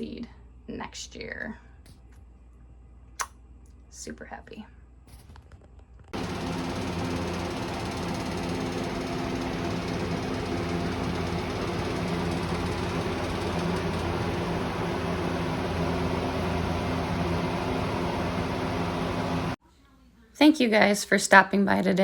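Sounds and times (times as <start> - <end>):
electric fan running: 5.8 - 19.6.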